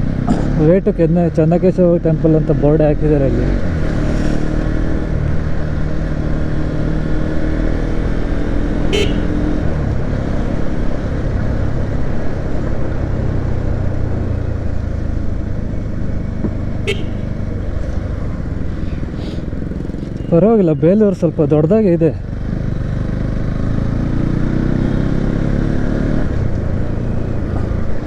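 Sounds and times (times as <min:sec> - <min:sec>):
motorcycle engine running: 0:08.2 - 0:12.2, 0:13.7 - 0:20.2
short horn toots: 0:08.9 - 0:09.6, 0:16.9 - 0:17.5.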